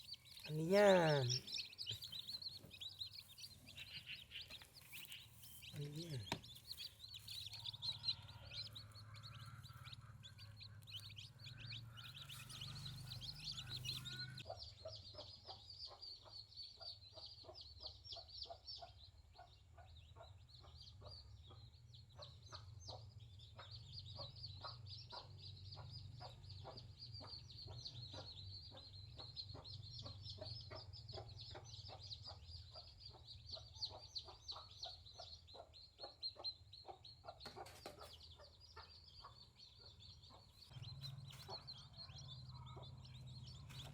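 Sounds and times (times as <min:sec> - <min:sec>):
high chirping: 0:00.0 - 0:17.6
chickens clucking: 0:00.0 - 0:43.9.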